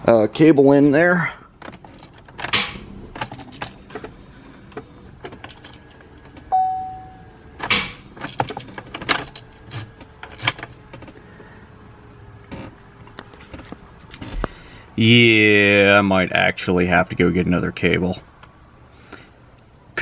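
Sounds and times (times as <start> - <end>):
short ringing metal ping: 6.6 - 7.3.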